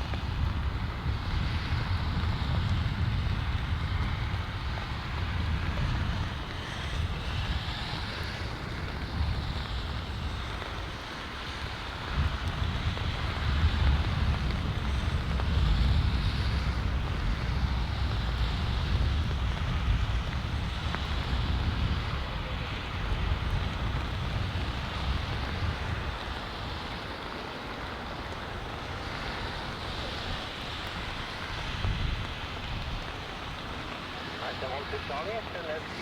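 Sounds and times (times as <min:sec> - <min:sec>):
jet engine noise: 0:00.0 - 0:36.0
wind noise on microphone: 0:00.0 - 0:36.0.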